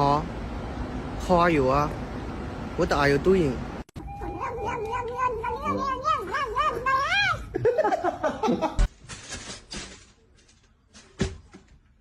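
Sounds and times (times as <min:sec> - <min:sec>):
cat meowing: 0:04.0 - 0:07.5.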